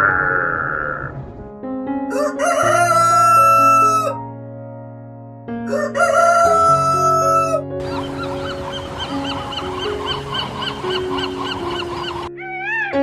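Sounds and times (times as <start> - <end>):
rooster crowing: 2.1 - 4.2, 5.7 - 8.0.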